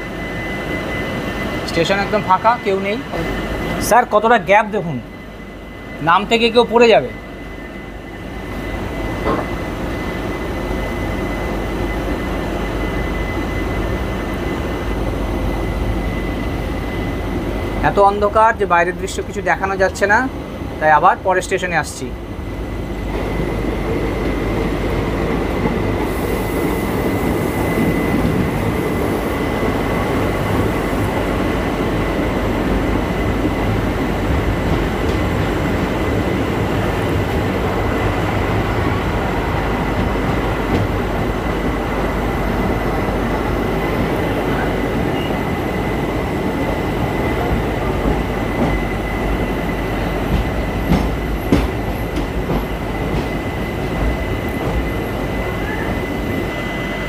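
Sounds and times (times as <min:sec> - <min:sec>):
train wheels rumbling on rails: 0:07.5 - 0:57.0
high wheel squeal: 0:54.9 - 0:57.0.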